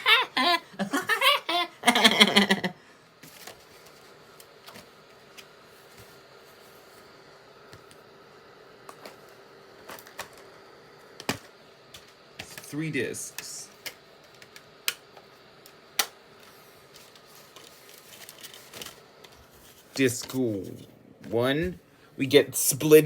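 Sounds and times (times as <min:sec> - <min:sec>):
person speaking: 0:19.9 - 0:23.0.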